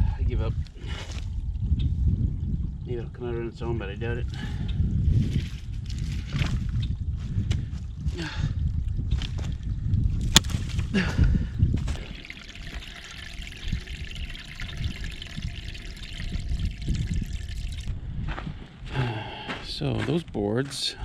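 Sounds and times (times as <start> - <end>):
water trickling from a pipe: 0.6 - 3.3, 11.8 - 17.9.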